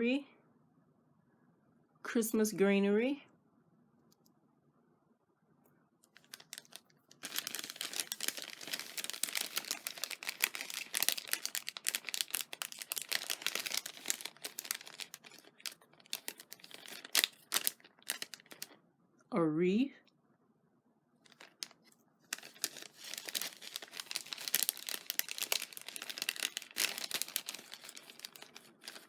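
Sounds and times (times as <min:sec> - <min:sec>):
plastic bag crinkling: 0:06.1 - 0:18.8, 0:21.3 - 0:29.0.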